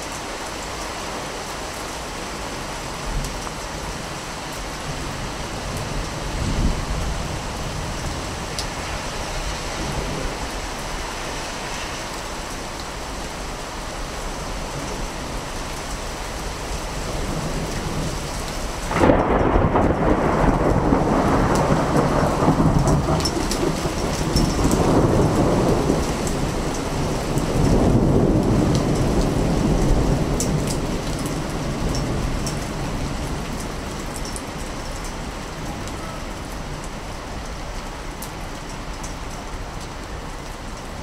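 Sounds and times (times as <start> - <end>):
steady rain: 0.0 - 41.0
thunder rumbling: 4.8 - 11.2, 17.0 - 34.3.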